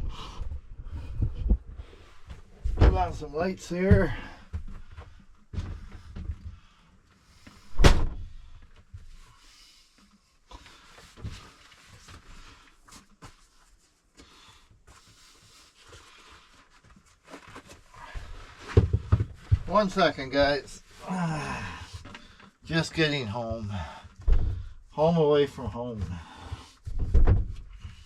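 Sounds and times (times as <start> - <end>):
rustling of things handled: 0.3 - 28.0
loud thump: 7.7 - 8.3.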